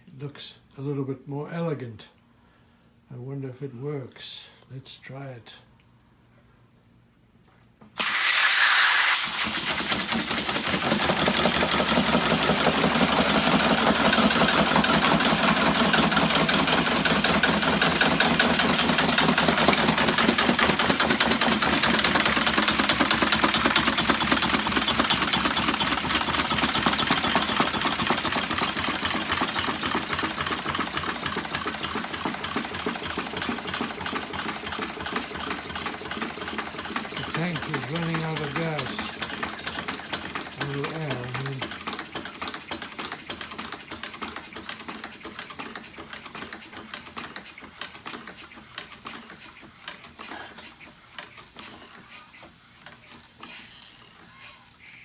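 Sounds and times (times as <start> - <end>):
air engine clattering: 9.6 - 41.8.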